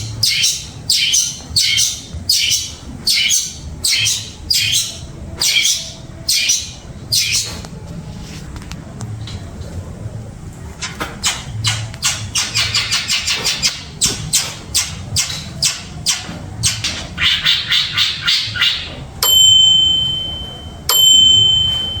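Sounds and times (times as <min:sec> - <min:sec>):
bird harsh scratchy calls: 0:00.2 - 0:07.6, 0:11.2 - 0:19.0
long high-pitched tones: 0:19.2 - 0:22.0.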